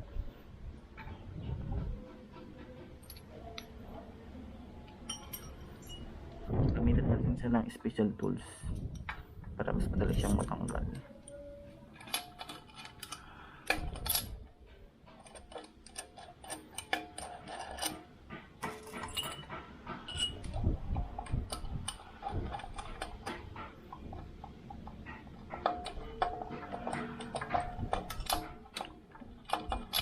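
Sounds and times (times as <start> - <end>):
metal hand tools clinking: 5.0 - 6.2, 10.1 - 14.4, 15.2 - 30.0.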